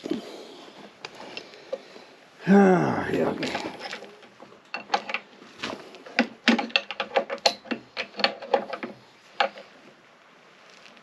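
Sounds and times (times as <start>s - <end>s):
clicks and knocks on metal parts: 3.6s - 5.3s, 6.0s - 9.7s.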